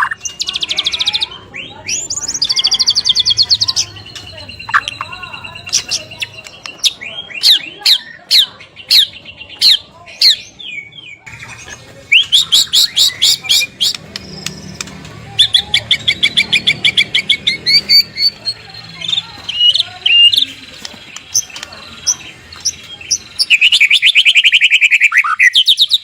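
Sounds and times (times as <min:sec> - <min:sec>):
bird singing whistled notes: 0:12.1 - 0:20.5.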